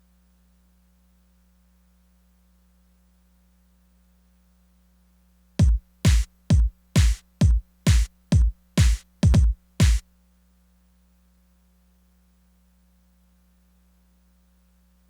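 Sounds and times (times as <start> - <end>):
kick drum hits: 5.6 - 10.0.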